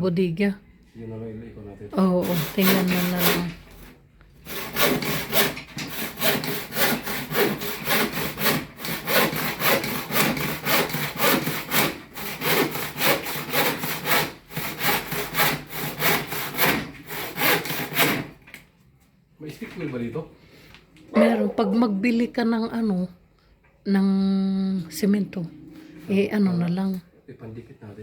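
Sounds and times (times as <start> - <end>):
handsaw cutting wood: 2.0 - 18.4.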